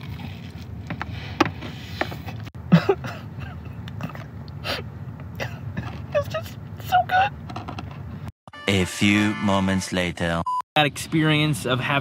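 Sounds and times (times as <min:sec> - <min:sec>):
chewing crunchy food: 0:00.0 - 0:01.0.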